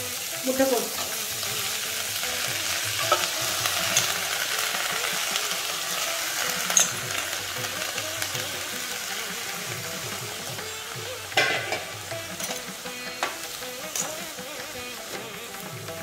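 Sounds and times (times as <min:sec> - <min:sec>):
vegetables sizzling in hot oil: 0:00.0 - 0:16.0
metal spatula clicking on pan: 0:03.0 - 0:04.3, 0:06.6 - 0:07.2, 0:11.4 - 0:14.4.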